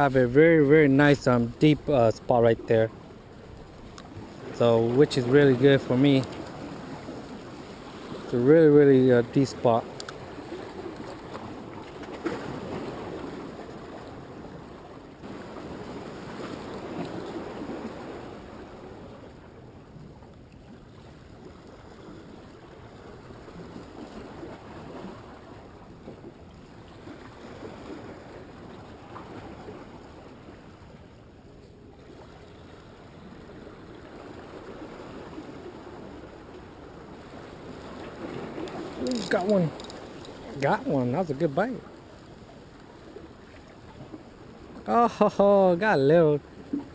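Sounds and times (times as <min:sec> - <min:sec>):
ocean surf washing on shore: 0:00.0 - 0:19.9, 0:32.0 - 0:46.9.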